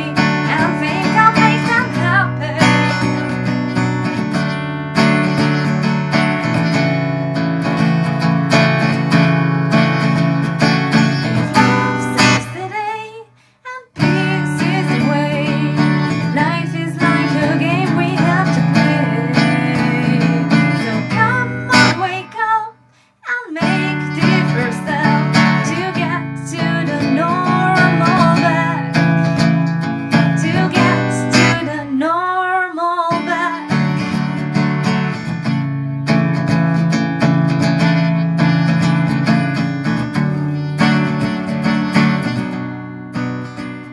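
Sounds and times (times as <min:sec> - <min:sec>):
woman singing: 0:00.0 - 0:03.6, 0:11.1 - 0:34.4
acoustic guitar strumming: 0:00.0 - 0:13.1, 0:14.0 - 0:23.0, 0:23.6 - 0:43.9.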